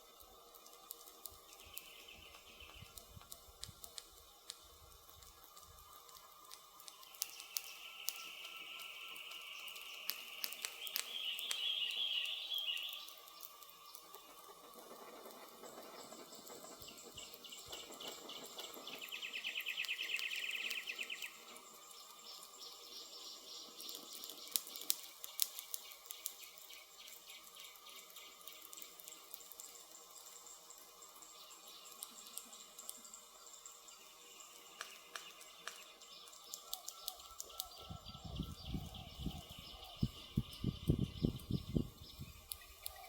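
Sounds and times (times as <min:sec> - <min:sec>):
campfire crackling and popping: 0:00.0 - 0:43.0
birds trilling: 0:35.2 - 0:43.0.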